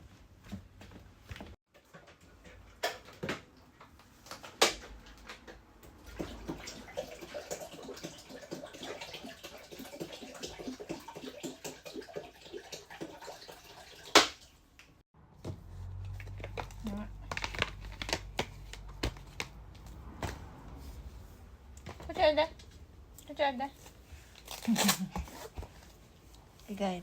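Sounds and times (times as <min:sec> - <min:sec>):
water splashing and pattering: 0:05.8 - 0:15.0.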